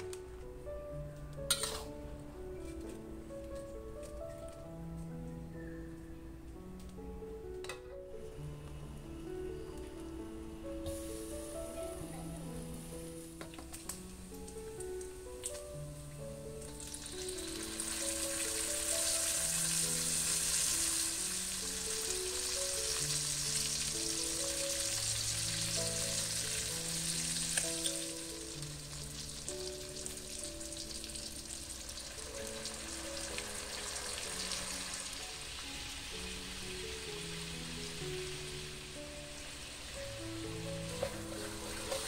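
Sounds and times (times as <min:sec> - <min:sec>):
soft background music: 0:00.0 - 0:42.0
meat sizzling in a wok: 0:10.8 - 0:13.6, 0:16.6 - 0:42.0.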